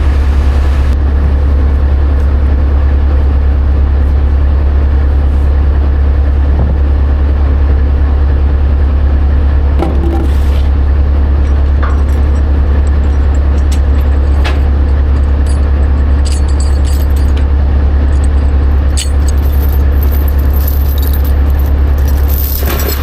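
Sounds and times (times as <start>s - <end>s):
diesel engine drone: 0.0s - 23.0s
light rattles and clicks: 11.3s - 23.0s.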